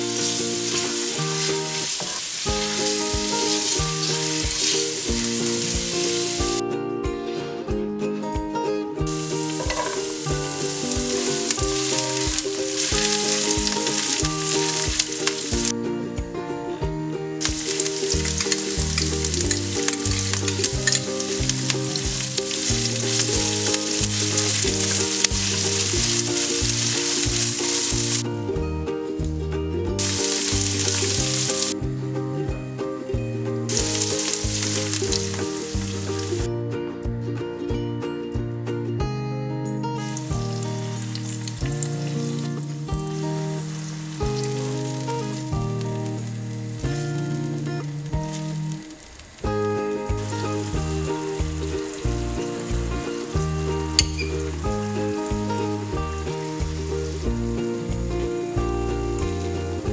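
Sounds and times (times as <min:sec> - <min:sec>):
onions sizzling in a frying pan: 0:00.0 - 0:06.3, 0:09.2 - 0:15.7, 0:17.4 - 0:28.2, 0:30.0 - 0:31.8, 0:33.7 - 0:36.3, 0:43.4 - 0:46.8, 0:56.5 - 0:58.0
light background music: 0:00.0 - 0:59.9.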